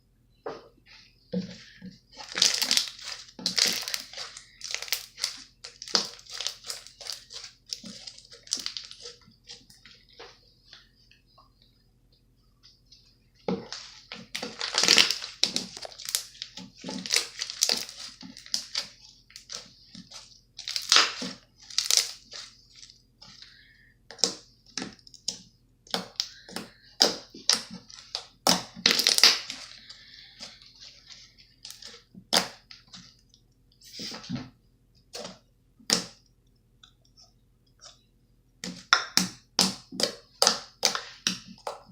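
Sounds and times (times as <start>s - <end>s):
slime squishing and crackling: 2.1s - 10.0s, 13.6s - 33.2s, 38.6s - 41.9s.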